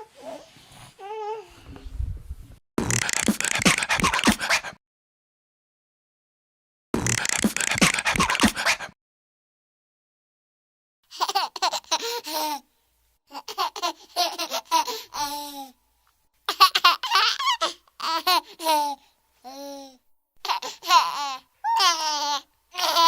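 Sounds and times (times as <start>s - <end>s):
baby laughing and babbling: 11.1s - 12.7s, 13.3s - 15.8s, 16.4s - 23.0s.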